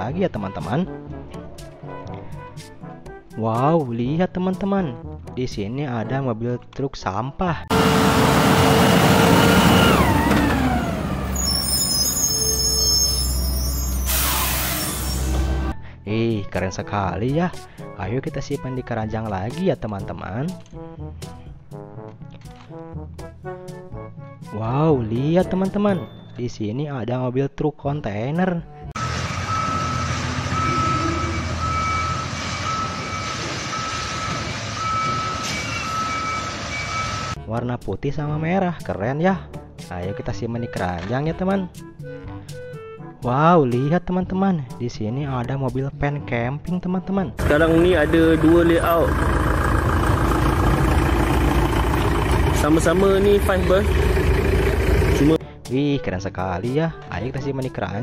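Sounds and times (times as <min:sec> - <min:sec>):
truck diesel engine driving by: 0:07.7 - 0:15.8, 0:29.0 - 0:37.4, 0:47.4 - 0:55.4
high brake squeal: 0:07.8 - 0:15.7, 0:29.0 - 0:37.4.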